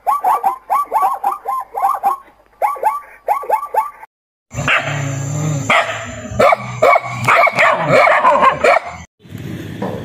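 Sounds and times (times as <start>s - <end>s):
puppy barking and yipping: 0.0s - 4.1s, 5.7s - 9.0s.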